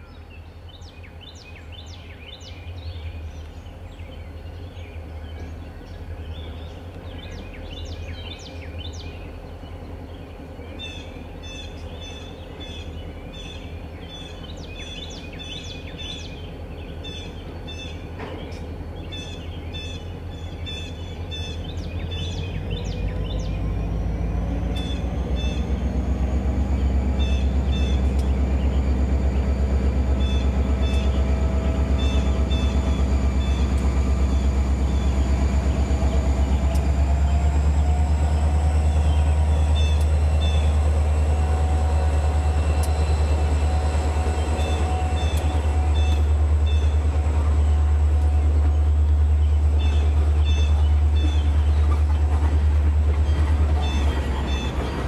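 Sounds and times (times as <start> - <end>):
diesel train engine drone: 0.0 - 55.0
wheels clicking over rail joints: 27.2 - 55.0.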